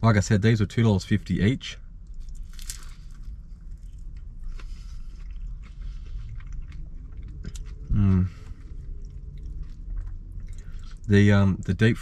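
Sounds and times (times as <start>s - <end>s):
person chewing crunchy food: 2.0s - 11.1s.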